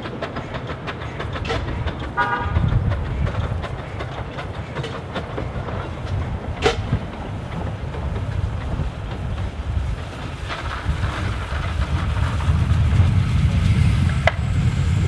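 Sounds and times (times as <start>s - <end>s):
train rumbling: 0.0s - 15.0s
train wheels clicking on rails: 0.0s - 15.0s
train horn toot: 2.1s - 3.0s.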